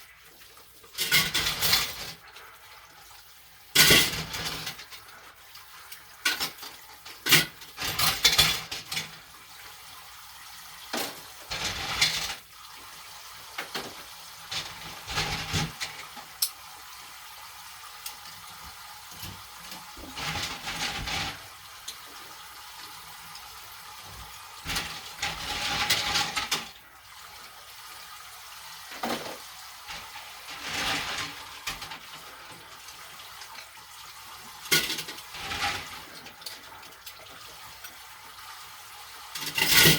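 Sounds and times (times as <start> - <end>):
dishes and pots clattering: 0.8 - 2.3, 3.7 - 5.0, 6.2 - 9.2, 10.9 - 12.4, 13.6 - 16.5, 19.1 - 21.4, 24.6 - 26.8, 28.9 - 32.1, 34.6 - 37.2, 39.3 - 39.9.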